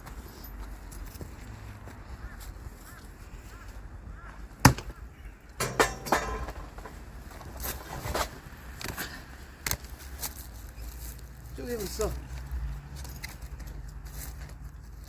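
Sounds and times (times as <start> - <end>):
axe splitting firewood: 4.6 - 4.9, 5.6 - 9.9.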